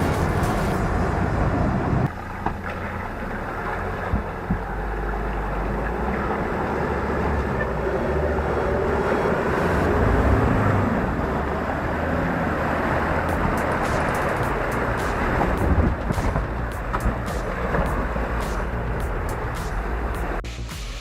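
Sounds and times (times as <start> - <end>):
off-road vehicle engine running: 0.0 - 21.0
wind buffeting microphone: 12.9 - 19.6
sharp knocks: 13.3 - 18.8.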